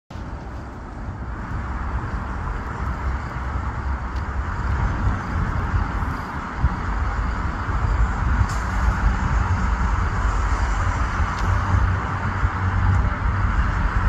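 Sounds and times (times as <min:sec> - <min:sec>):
rushing noise: 0:00.1 - 0:14.0
train low rumble: 0:00.1 - 0:14.0.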